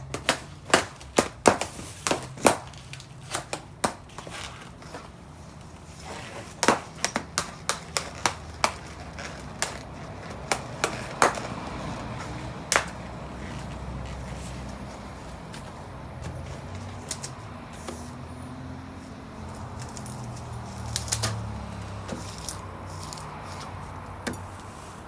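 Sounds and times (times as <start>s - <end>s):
balloons popping: 6.1s - 14.0s.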